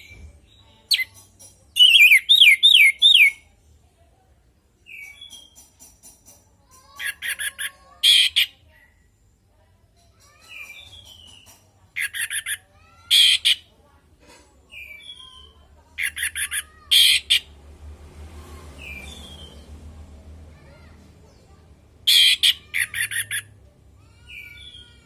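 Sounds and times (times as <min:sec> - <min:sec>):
bird harsh notes: 0:12.0 - 0:13.7, 0:14.7 - 0:17.6, 0:22.0 - 0:23.6.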